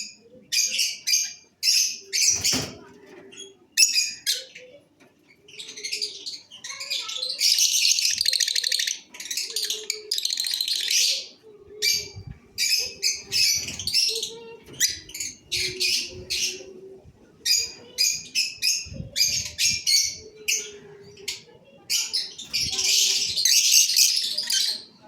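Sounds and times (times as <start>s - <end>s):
lovebirds chattering and chirping: 0.0s - 25.0s.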